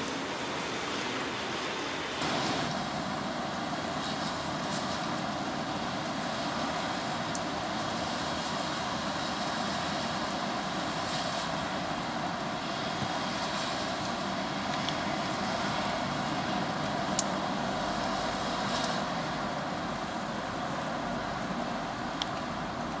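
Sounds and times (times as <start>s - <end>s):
rain hissing: 0.0s - 23.0s.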